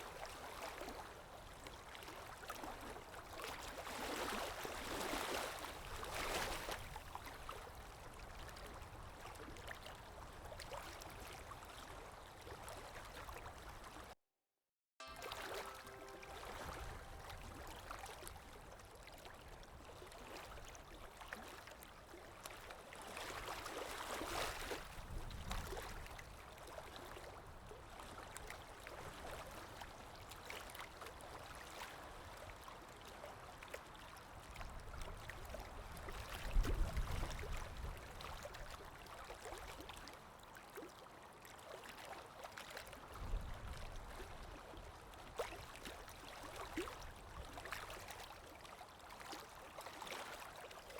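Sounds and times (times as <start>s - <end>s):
river water flowing: 15.0s - 24.8s, 45.6s - 50.9s.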